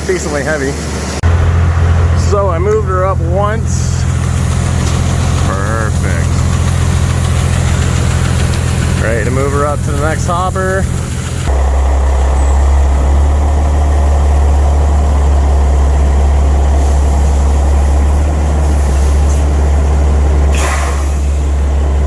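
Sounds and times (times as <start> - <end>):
diesel truck engine humming: 0.0 - 22.0
air hiss: 16.6 - 19.8, 20.5 - 21.8.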